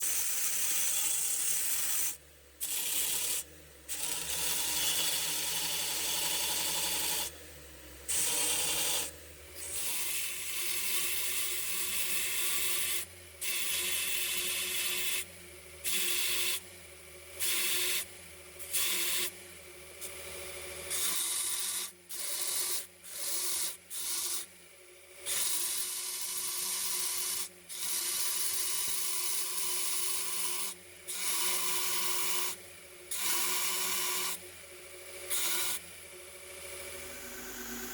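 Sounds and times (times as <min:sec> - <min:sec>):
sander motor hum: 0:35.3 - 0:37.9.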